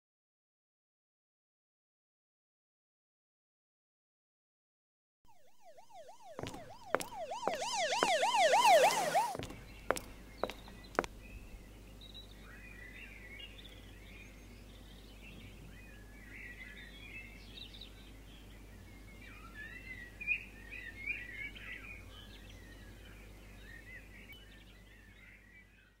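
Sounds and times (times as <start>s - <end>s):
siren-like warbling tone: 5.3s - 9.4s
birds chirping: 6.4s - 15.3s.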